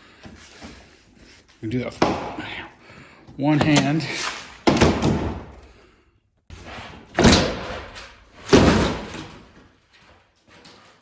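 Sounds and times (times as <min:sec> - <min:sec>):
heavy strikes on wall: 0:02.0 - 0:02.6.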